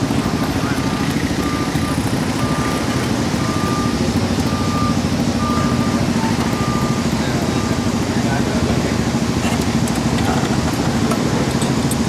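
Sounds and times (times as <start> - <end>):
reversing alarm beeping: 0.0 - 8.2
engine running: 0.0 - 12.0.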